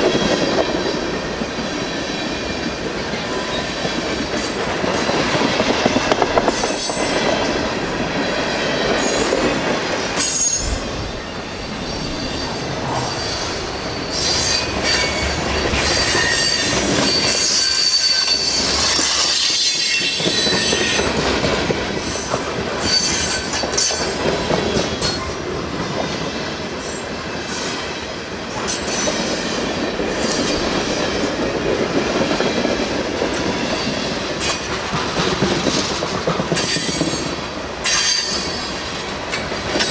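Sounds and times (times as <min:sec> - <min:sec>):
high wheel squeal: 0:10.2 - 0:20.9.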